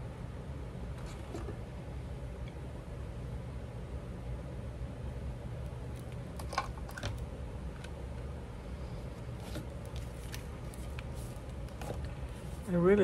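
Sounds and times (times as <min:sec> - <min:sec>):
steady low hum: 0:00.0 - 0:13.0
paper rustling: 0:09.4 - 0:12.8.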